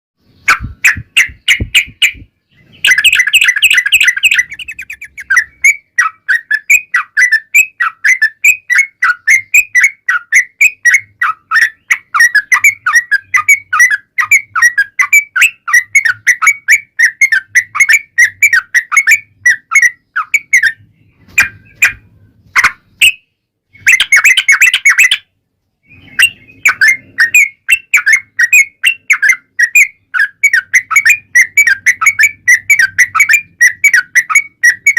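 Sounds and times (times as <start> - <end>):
bird singing chattering notes: 0.2 - 34.9
harsh bird rattles: 0.5 - 5.5.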